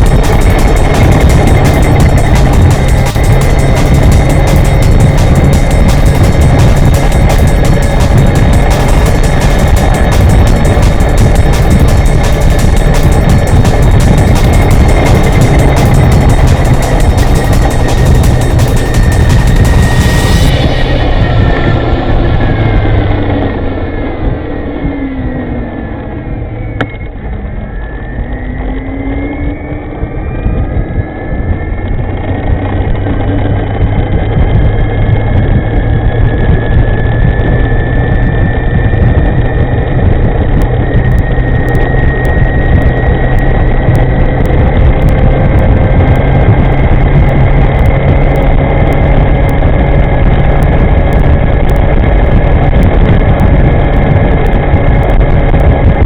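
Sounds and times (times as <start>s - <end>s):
wind rumble on microphone: 0.0s - 56.0s.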